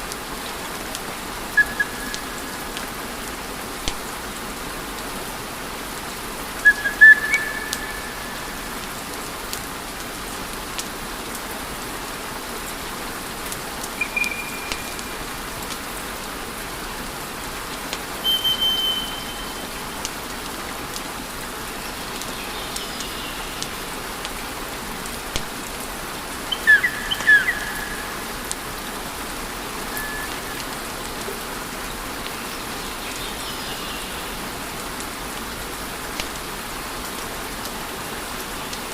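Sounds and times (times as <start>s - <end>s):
high whistles from burning logs: 1.6s - 2.4s, 14.0s - 15.2s, 18.2s - 19.9s, 26.5s - 28.2s, 29.9s - 30.7s.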